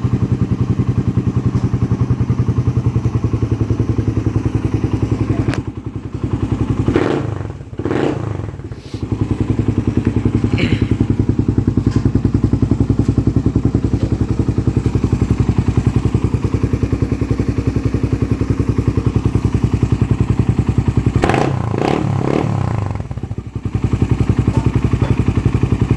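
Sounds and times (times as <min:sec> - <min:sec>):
loud motorcycle engine pulsing: 0:00.0 - 0:25.9.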